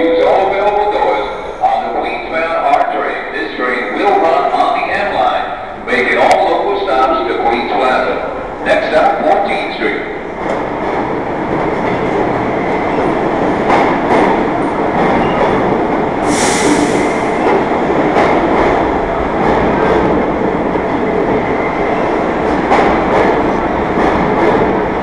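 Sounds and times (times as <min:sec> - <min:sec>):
subway train rumble: 0:00.0 - 0:25.0
loud hiss: 0:16.2 - 0:17.5.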